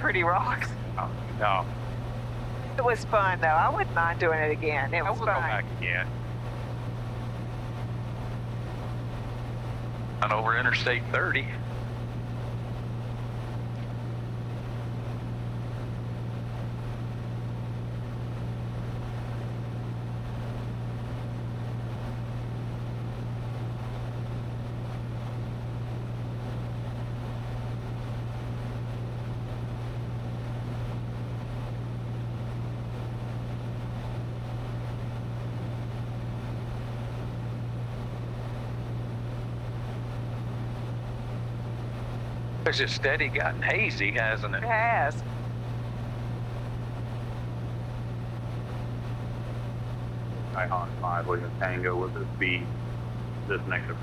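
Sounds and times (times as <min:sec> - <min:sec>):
aircraft engine and propeller droning: 0:00.0 - 0:54.0.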